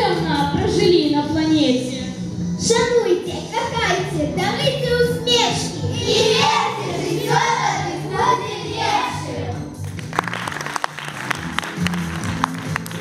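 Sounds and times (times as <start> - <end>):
instrumental backing music: 0.0 - 13.0
voices singing: 5.6 - 9.6
people clapping: 9.8 - 13.0.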